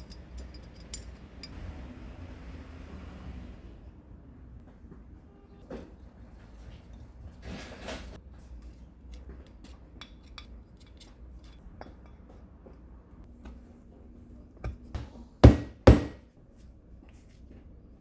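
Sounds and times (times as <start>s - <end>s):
tools clicking and clinking: 0.0s - 1.5s.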